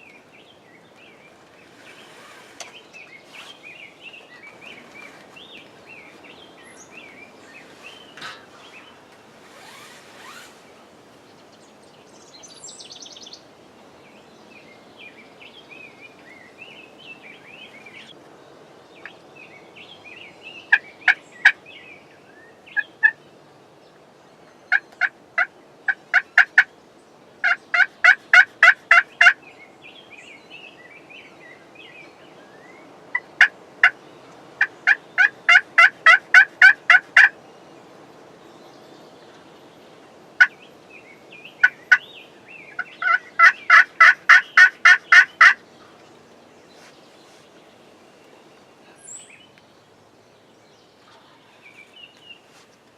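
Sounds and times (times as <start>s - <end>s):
faint songbirds chirping: 0.0s - 52.9s
wild turkey yelping: 27.4s - 29.4s, 34.6s - 37.3s, 42.8s - 45.6s.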